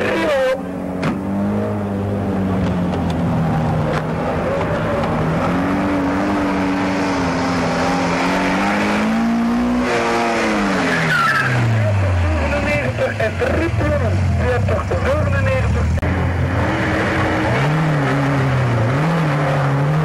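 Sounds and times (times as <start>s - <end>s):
car engine revving hard: 4.0s - 14.5s, 16.0s - 20.0s.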